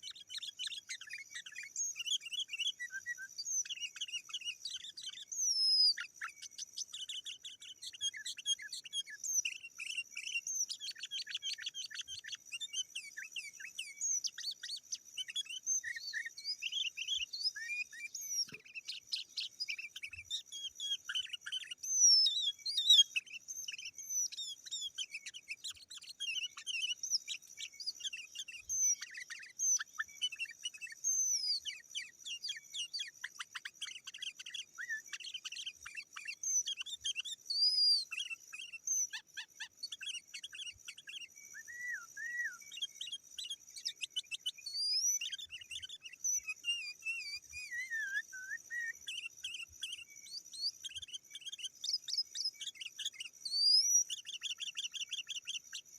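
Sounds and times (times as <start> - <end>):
bird chirping and whistling: 0.0 - 55.8.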